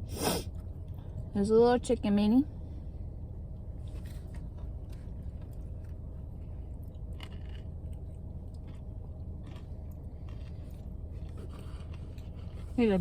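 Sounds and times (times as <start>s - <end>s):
steady low hum: 0.0s - 13.0s
person chewing: 4.0s - 12.8s
small clicks and crunches: 6.9s - 8.8s.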